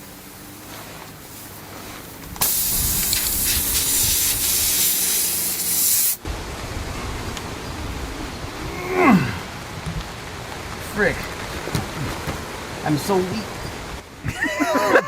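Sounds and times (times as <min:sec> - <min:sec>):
compressed air hissing: 0:00.0 - 0:06.3.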